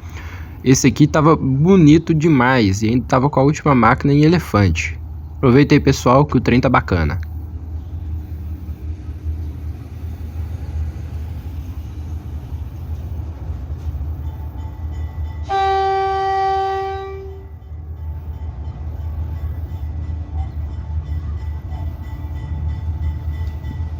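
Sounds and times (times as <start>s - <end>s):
diesel locomotives rumbling: 0.0s - 23.9s
locomotive air horn blast: 15.4s - 17.6s.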